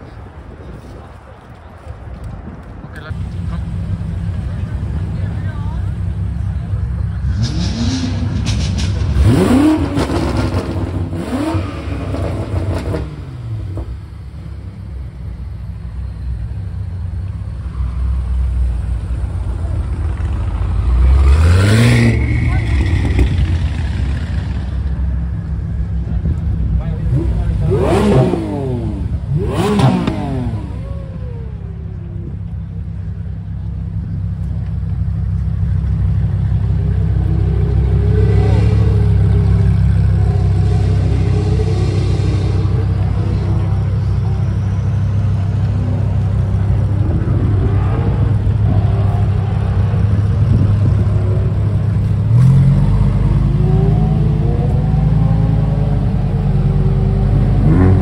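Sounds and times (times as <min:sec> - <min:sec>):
car engines revving: 0:00.0 - 0:58.0
low engine note: 0:00.1 - 0:58.0.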